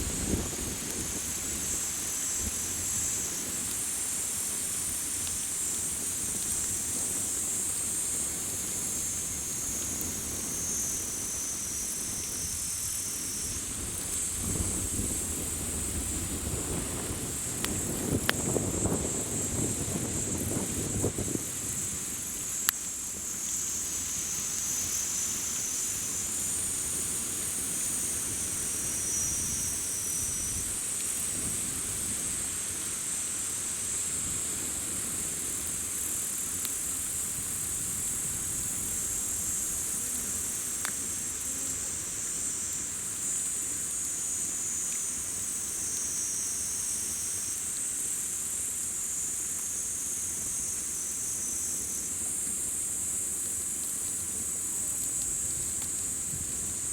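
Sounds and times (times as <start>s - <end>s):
campfire crackling: 0.0s - 56.9s
crickets and insects chirping: 0.0s - 56.9s.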